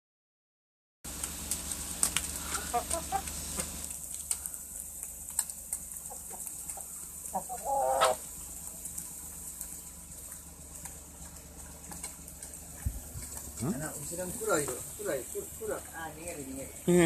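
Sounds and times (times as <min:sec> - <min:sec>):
chickens clucking: 0:01.5 - 0:17.0.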